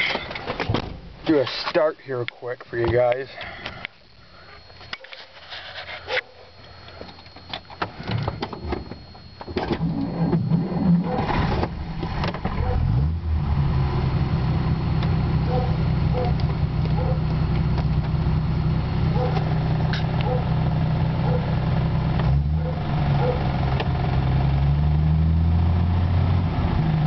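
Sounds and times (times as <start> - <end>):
engine cranking and idling: 6.9 - 24.8.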